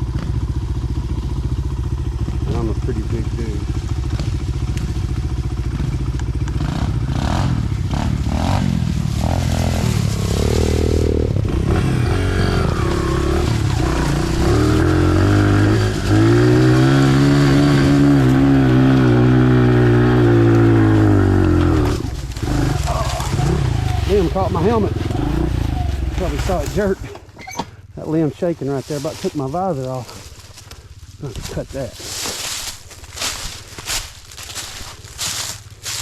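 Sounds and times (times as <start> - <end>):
dirt bike engine revving hard: 6.6 - 27.0.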